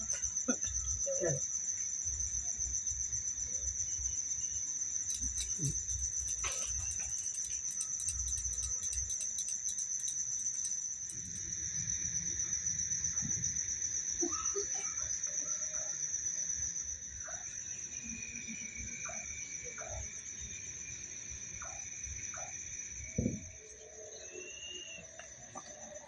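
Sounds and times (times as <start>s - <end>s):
crickets chirping: 0.0s - 26.0s
fast high clicking: 5.1s - 11.6s.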